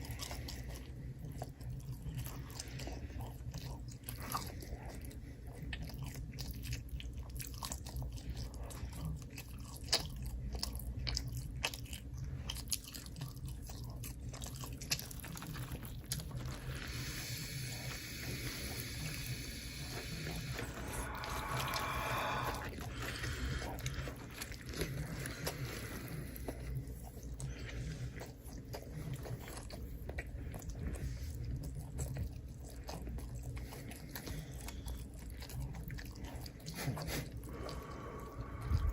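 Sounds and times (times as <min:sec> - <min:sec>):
crunchy chewing: 0:00.0 - 0:38.9
long hiss: 0:17.1 - 0:22.7.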